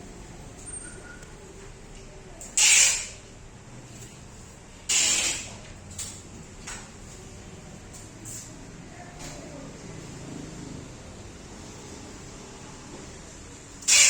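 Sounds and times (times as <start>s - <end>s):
loud hissing bursts: 2.6s - 3.2s, 4.9s - 5.5s.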